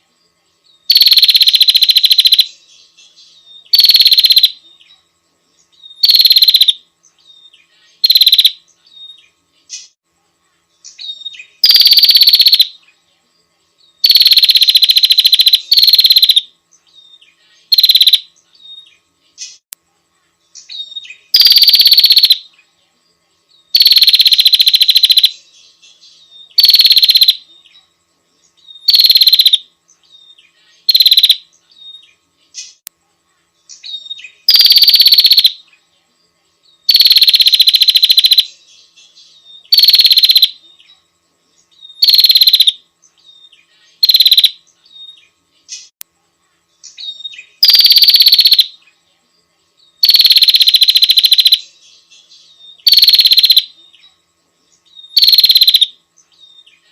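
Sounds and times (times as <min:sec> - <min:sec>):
bird buzzy trill: 0:00.8 - 0:05.0, 0:05.6 - 0:10.0, 0:10.8 - 0:12.9, 0:14.0 - 0:19.7, 0:20.5 - 0:22.6, 0:23.7 - 0:27.9, 0:28.6 - 0:32.9, 0:33.7 - 0:35.8, 0:36.8 - 0:40.9, 0:41.8 - 0:46.0, 0:46.8 - 0:48.8, 0:50.0 - 0:53.9, 0:54.9 - 0:56.9.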